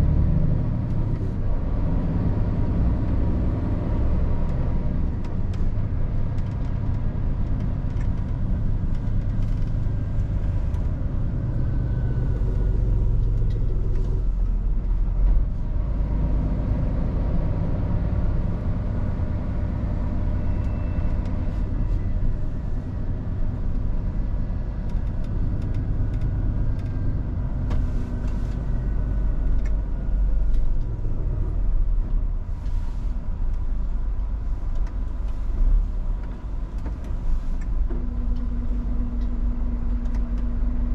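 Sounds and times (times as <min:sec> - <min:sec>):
road noise: 0:00.0 - 0:40.9
truck diesel engine driving: 0:00.0 - 0:40.9.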